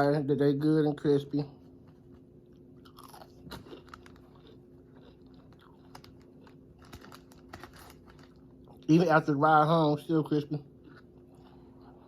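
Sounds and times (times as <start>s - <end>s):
person chewing crunchy food: 1.6s - 8.9s, 10.7s - 12.0s.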